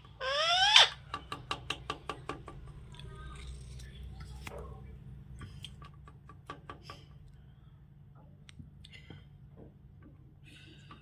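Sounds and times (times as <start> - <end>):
low steady hum: 0.0 - 11.0
parrot soft squeaks: 0.1 - 1.0.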